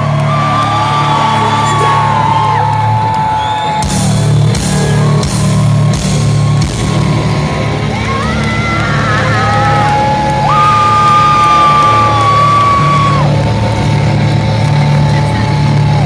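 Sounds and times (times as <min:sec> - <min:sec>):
loud live rock music: 0:00.0 - 0:16.0
drum and cymbal crashes: 0:03.8 - 0:07.9.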